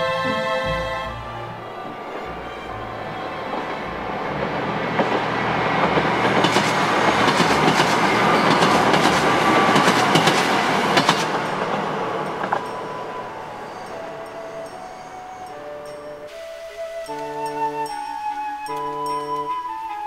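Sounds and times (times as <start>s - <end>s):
diesel train rumble: 0.0s - 17.1s
wheels clattering over rail joints: 1.6s - 17.0s.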